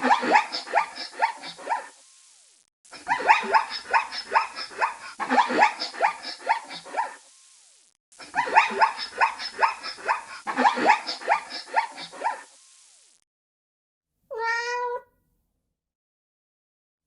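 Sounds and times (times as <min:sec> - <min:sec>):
cat meow: 0:14.3 - 0:15.1.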